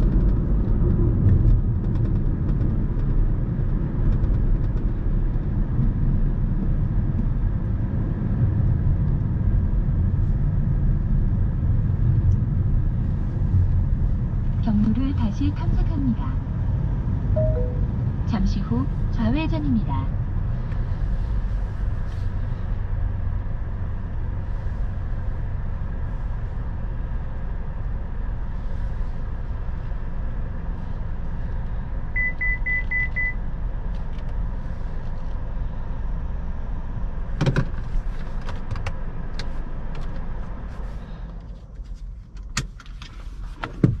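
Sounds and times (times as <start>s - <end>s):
car engine hum: 0.0s - 44.0s
short high beeps: 17.4s - 18.0s.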